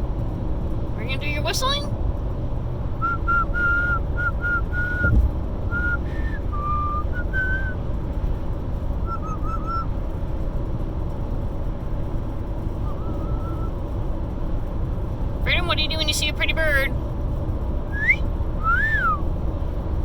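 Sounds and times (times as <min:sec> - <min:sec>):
car road noise: 0:00.0 - 0:20.0
low thump: 0:05.0 - 0:05.5
parrot whistling: 0:09.1 - 0:09.9, 0:12.8 - 0:13.7.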